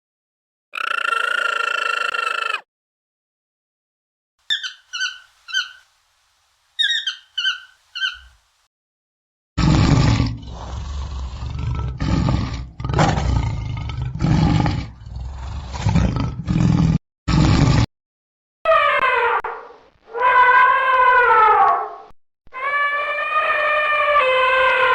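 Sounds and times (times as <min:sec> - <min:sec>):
short high-pitched calls: 0:00.8 - 0:02.6, 0:04.5 - 0:05.9, 0:06.8 - 0:08.4
large animal roaring: 0:09.6 - 0:17.9.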